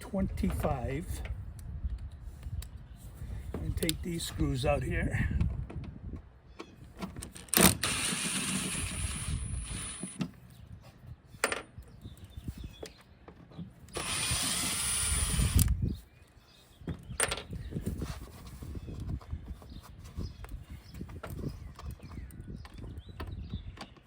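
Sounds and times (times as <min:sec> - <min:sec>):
power drill running: 0:07.5 - 0:10.2, 0:13.9 - 0:15.7.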